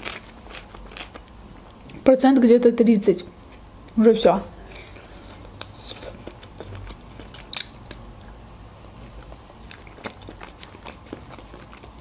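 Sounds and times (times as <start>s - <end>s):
sharp crackle of crispy food: 0.0s - 1.6s, 4.6s - 8.1s.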